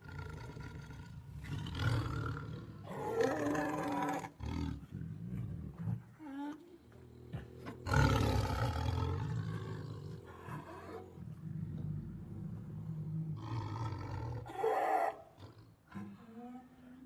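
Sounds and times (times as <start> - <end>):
tiger roaring: 7.8 - 16.2.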